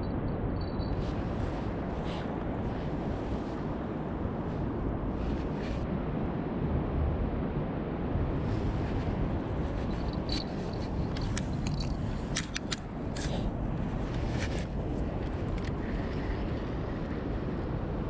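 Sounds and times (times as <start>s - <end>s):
low outdoor rumble: 0.0s - 18.0s
sharp clicks and ticks: 11.1s - 13.3s.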